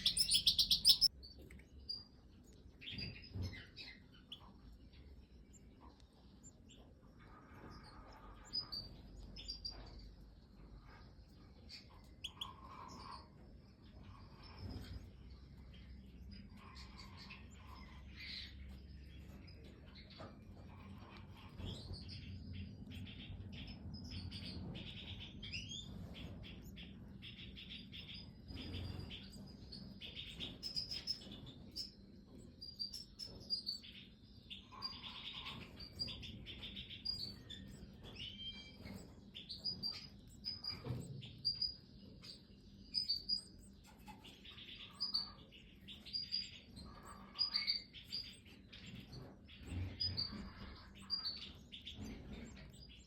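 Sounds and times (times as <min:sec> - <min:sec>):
high bird calls: 0:00.0 - 0:01.1
chicks begging chirps: 0:00.0 - 0:53.0.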